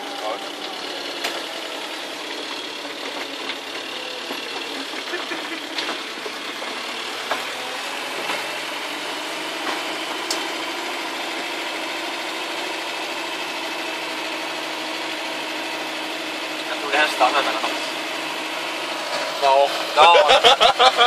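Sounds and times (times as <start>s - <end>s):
car engine running steadily: 0.0s - 21.0s
vehicle clicks and knocks: 3.0s - 7.6s.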